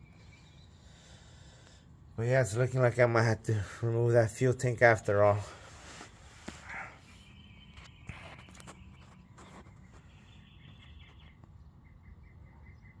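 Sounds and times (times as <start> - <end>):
small bird chirping: 6.6 - 13.0.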